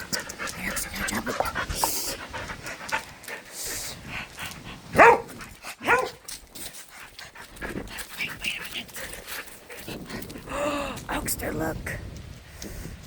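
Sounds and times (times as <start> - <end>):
dog barking: 5.0 - 6.2.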